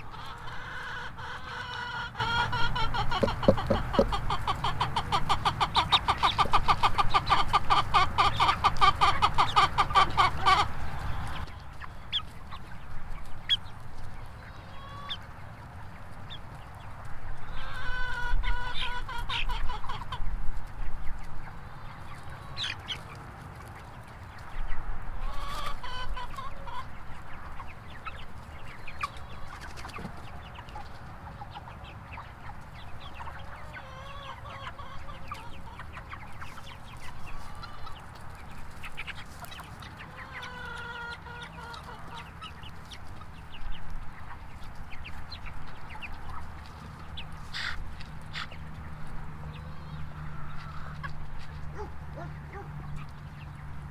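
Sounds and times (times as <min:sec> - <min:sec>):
chickens clucking: 0:00.0 - 0:53.9.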